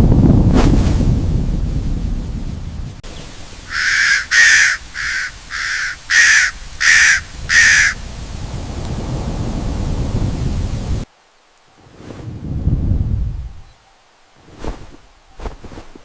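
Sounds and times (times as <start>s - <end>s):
low noisy rumble: 0.0s - 16.0s
bird calling: 3.0s - 8.4s.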